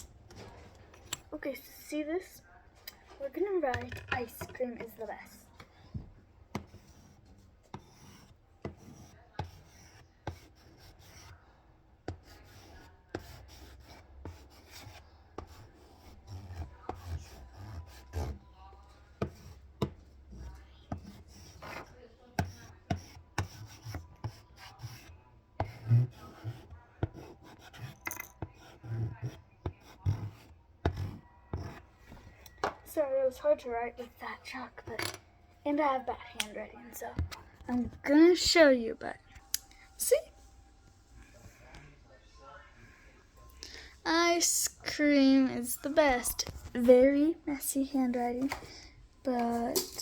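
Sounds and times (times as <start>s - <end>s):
chalk scratching on chalkboard: 3.8s - 32.4s.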